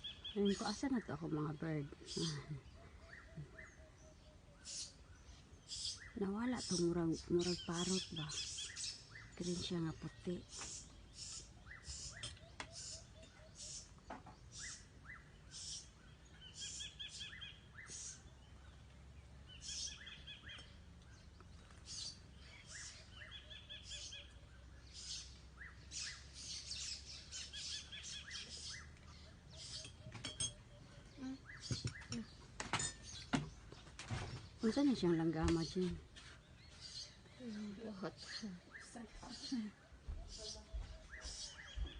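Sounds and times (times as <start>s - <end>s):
bird trills: 0.0s - 18.6s, 19.5s - 33.6s
birds chirping: 0.0s - 41.9s.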